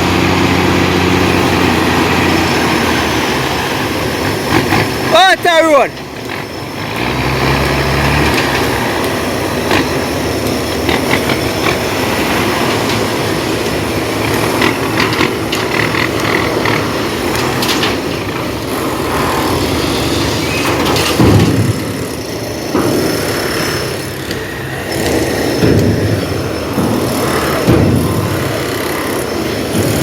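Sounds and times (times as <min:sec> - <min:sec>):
heavy dump truck engines running: 0:00.0 - 0:30.0
knocks and rattles: 0:19.4 - 0:30.0.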